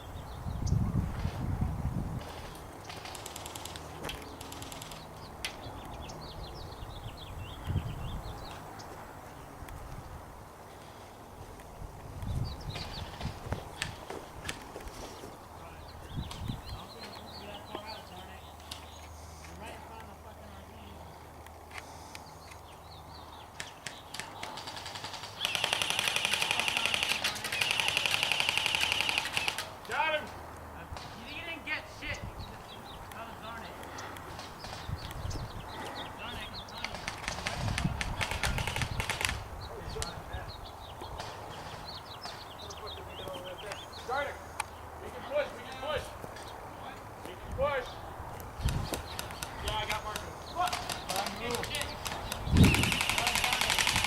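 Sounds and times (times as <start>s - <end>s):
bird chirping: 2.2s - 10.1s, 11.7s - 30.5s, 31.2s - 54.0s
rapid high ticking: 2.9s - 5.2s, 23.5s - 29.9s, 48.6s - 54.0s
airsoft gun firing full auto: 24.6s - 29.7s, 50.7s - 54.0s.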